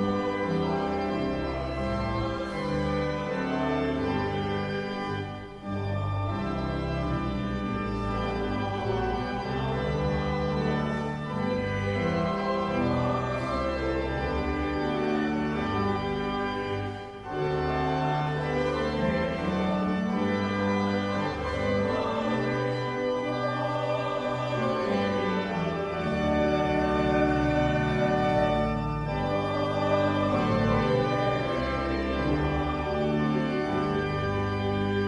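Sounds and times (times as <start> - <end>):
church organ playing hymn chords: 0.0 - 35.0.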